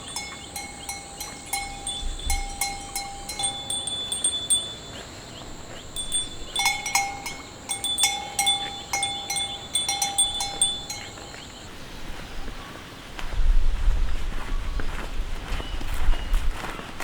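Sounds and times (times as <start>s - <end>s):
small metal bells struck: 0.0s - 11.5s.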